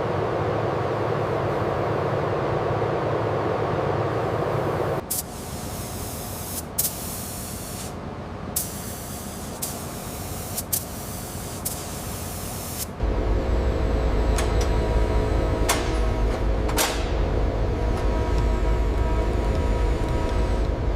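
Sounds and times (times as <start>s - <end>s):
pressurized spray hissing: 5.1s - 8.0s, 8.6s - 12.9s.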